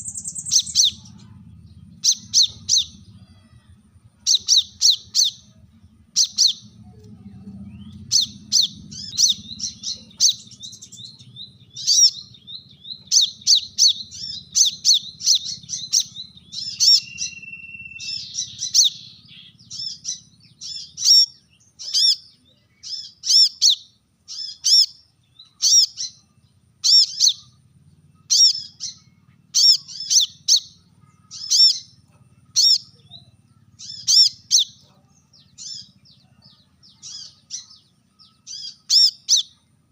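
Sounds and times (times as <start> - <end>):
bird chirping high calls: 0.0 - 39.9
faint low hum: 0.0 - 39.9
steady whistle: 16.8 - 18.4.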